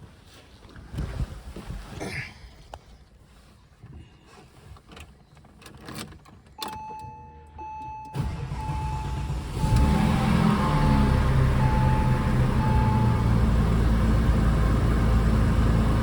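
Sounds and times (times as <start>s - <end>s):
starter motor cranking: 8.2s - 13.0s
car engine running loud: 8.2s - 16.0s.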